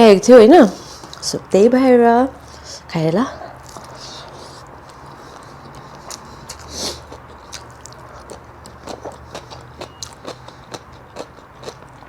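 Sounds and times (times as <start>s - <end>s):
chewing with mouth clicks: 0.9s - 1.2s, 3.5s - 12.0s.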